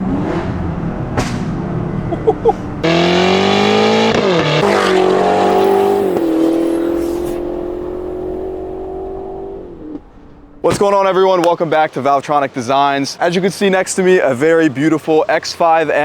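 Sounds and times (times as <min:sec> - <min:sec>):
car engine revving and droning: 0:00.0 - 0:10.8.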